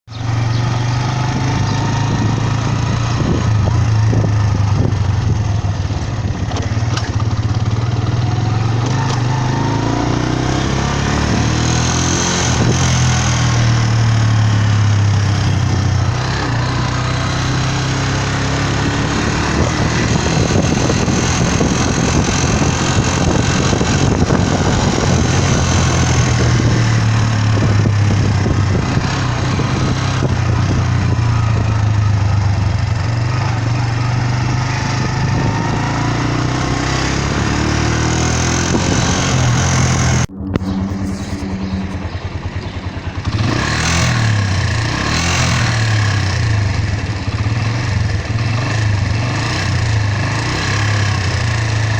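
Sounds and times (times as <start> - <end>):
motorcycle engine revving: 0.0 - 51.9
sharp metallic noise: 37.9 - 45.0.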